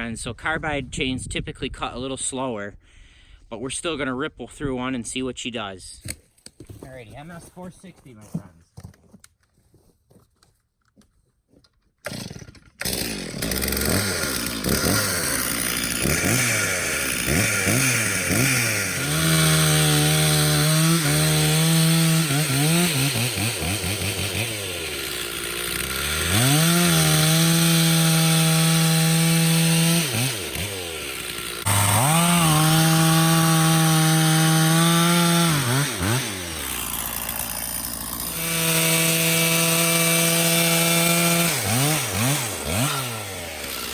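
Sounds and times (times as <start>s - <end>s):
chainsaw revving and cutting wood: 12.0s - 43.9s.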